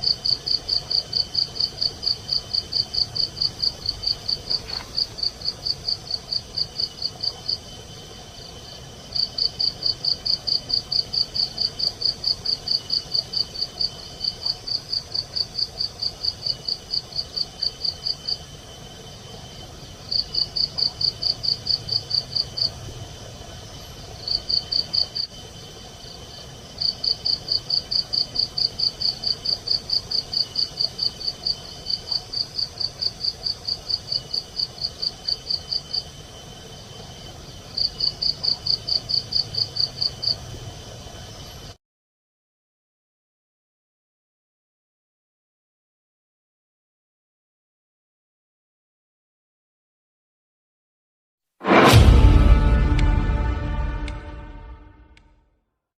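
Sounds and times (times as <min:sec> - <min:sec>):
cricket chirping: 0:00.0 - 0:41.8
high insect trill: 0:00.0 - 0:41.8.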